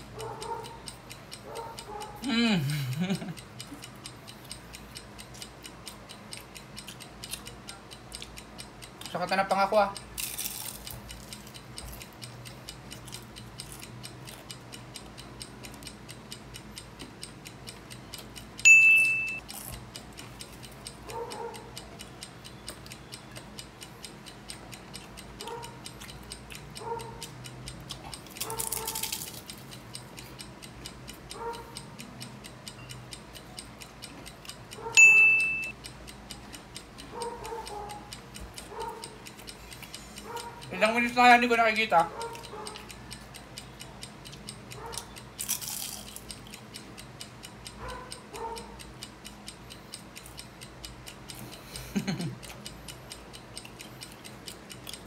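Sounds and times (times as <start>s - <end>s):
clock ticking: 0.0s - 55.0s
bright chime: 18.7s - 19.4s, 35.0s - 35.7s.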